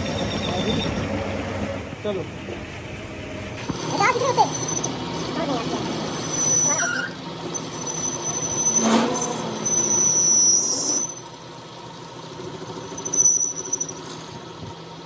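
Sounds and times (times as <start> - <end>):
high-pitched metal squeal: 0.0 - 1.1, 3.8 - 11.3, 12.8 - 14.2.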